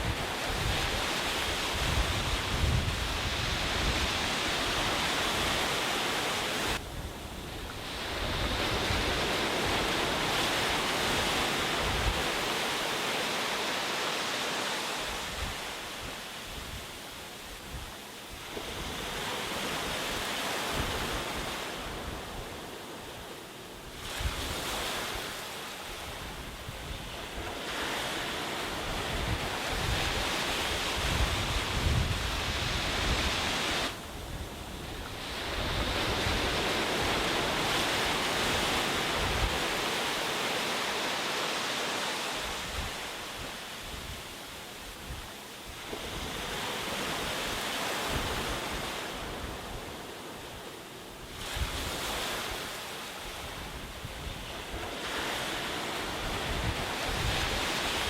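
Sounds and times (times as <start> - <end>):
wind rumble on microphone: 0.0 - 12.7, 15.0 - 40.3, 42.3 - 58.0
sea waves breaking on beach: 0.0 - 58.0.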